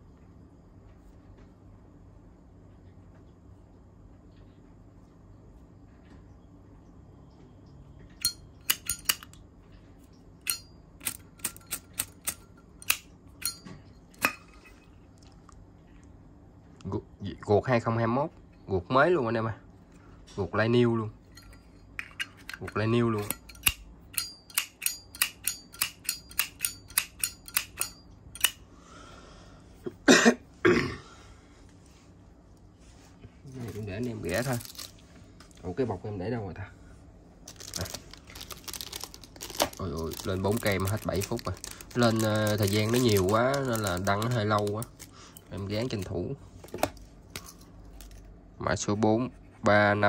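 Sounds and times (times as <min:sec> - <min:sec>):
person coughing: 0:29.9 - 0:31.2.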